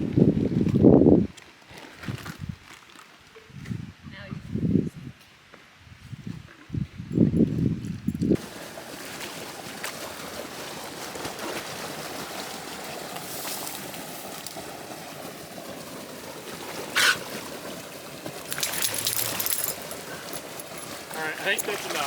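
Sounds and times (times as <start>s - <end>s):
stream water running: 7.6s - 22.0s.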